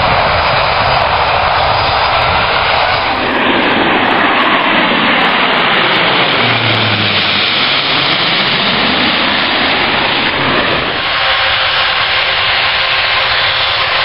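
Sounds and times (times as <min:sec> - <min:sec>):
jet engines at takeoff: 0:00.0 - 0:14.0.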